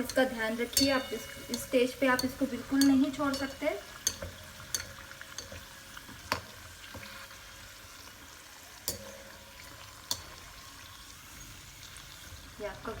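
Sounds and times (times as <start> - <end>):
utensil clinking against pan: 0.0 - 7.1, 8.9 - 10.6
deep-frying sizzle: 0.0 - 13.0.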